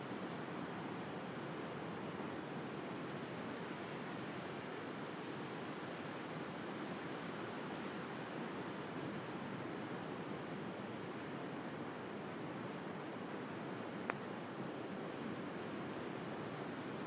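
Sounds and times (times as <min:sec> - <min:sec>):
wood fire crackling: 0:11.0 - 0:16.6.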